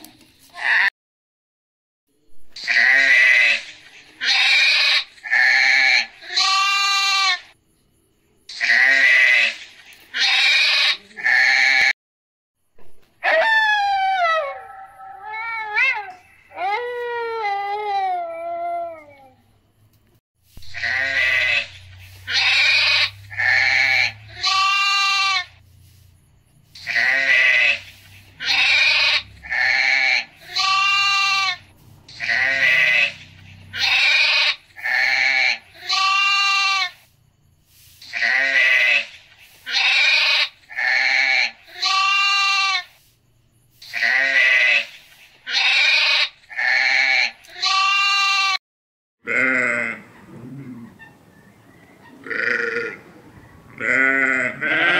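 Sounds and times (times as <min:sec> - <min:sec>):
sheep bleating: 0:02.6 - 0:07.4, 0:10.2 - 0:11.9, 0:20.7 - 0:25.6, 0:26.8 - 0:37.0, 0:38.1 - 0:39.1, 0:39.7 - 0:42.9, 0:43.8 - 0:44.9, 0:45.5 - 0:48.6, 0:49.2 - 0:50.1, 0:52.2 - 0:53.0, 0:53.8 - 0:54.9.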